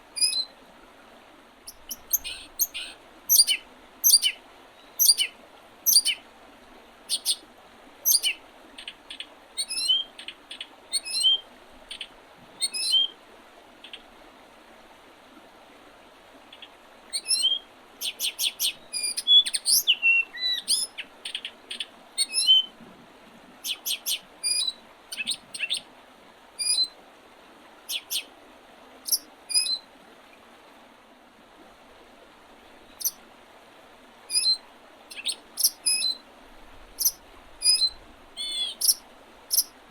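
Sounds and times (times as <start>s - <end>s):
faint steady hiss: 0.0s - 39.9s
songbirds chirping: 1.6s - 6.2s, 7.1s - 7.4s, 8.0s - 13.2s, 16.4s - 22.7s, 27.9s - 28.3s, 34.3s - 36.2s, 37.0s - 39.7s.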